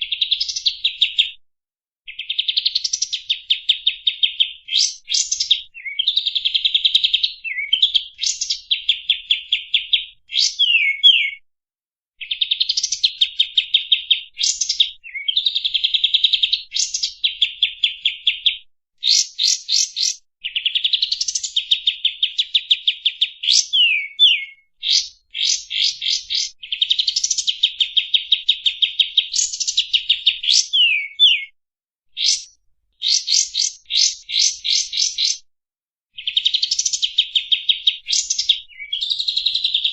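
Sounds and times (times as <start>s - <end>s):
songbird fast trills: 32.2s - 35.4s.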